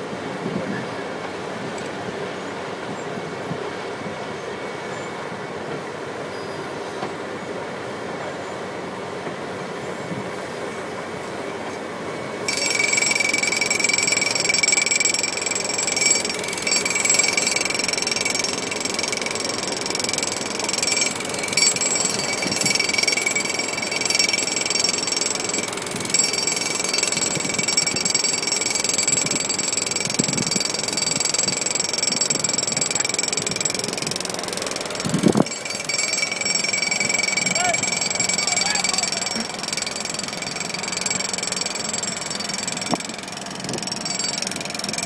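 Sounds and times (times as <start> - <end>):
high-pitched tone: 12.5 - 34.0, 35.4 - 41.4
milling machine grinding asphalt: 12.5 - 45.0.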